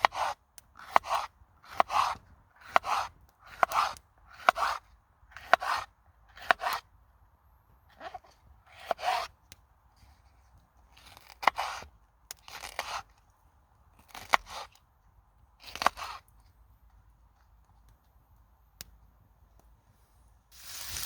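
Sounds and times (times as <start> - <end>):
crisp crunching strokes: 20.5 - 21.0.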